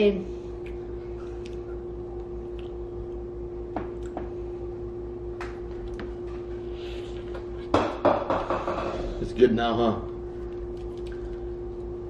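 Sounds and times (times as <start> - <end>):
faint steady hum: 0.0 - 12.0
bread crunching when chewed: 10.4 - 11.9.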